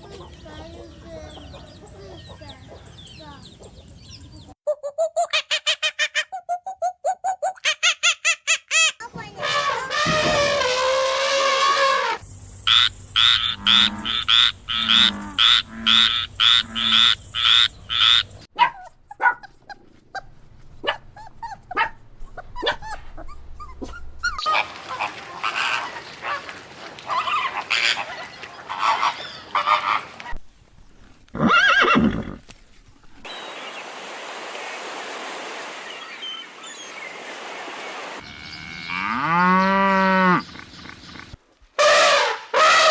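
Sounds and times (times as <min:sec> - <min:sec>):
animal calls: 0:23.8 - 0:30.1.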